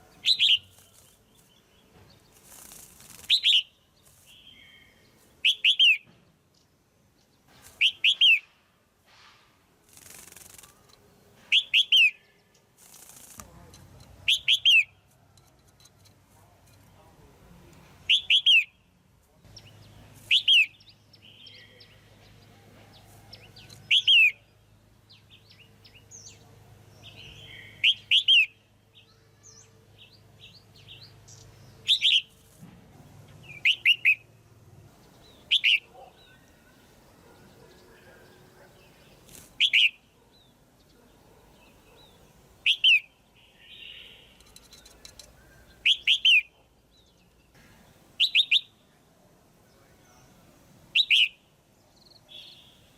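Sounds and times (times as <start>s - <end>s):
faint bird chirps: 0.0s - 8.5s, 35.0s - 49.0s
bulbul calling: 0.1s - 1.3s, 2.5s - 6.1s, 7.8s - 8.5s, 13.0s - 15.1s, 18.1s - 18.8s, 19.6s - 22.0s, 23.4s - 24.5s, 27.0s - 28.6s, 30.8s - 32.4s, 33.4s - 34.4s, 35.1s - 40.5s, 41.6s - 46.7s, 48.2s - 48.8s, 51.0s - 51.4s.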